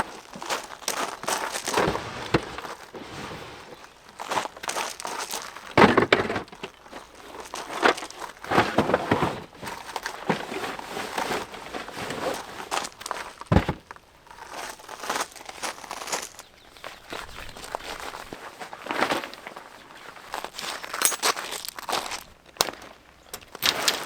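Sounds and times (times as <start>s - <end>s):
crinkling and rustling: 0.0s - 24.0s
dull thump: 13.5s - 13.9s.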